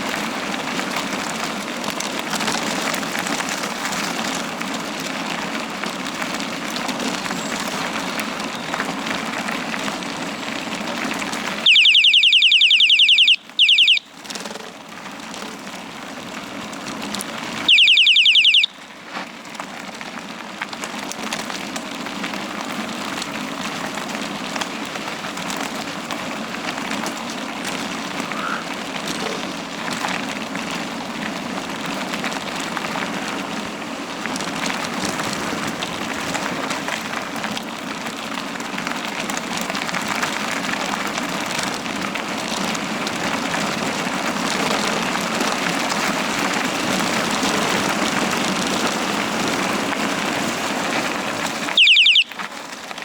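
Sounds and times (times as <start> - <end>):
bicycle tyres rolling: 0.0 - 53.0
shrill high-pitched sound: 11.7 - 14.0, 17.7 - 18.7, 51.8 - 52.4.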